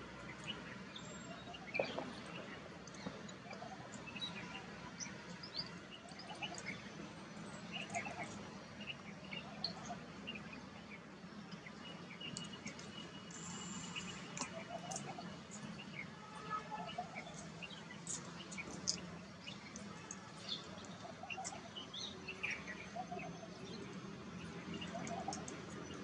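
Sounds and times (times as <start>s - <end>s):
bird chirps and twitters: 11.6s - 24.0s.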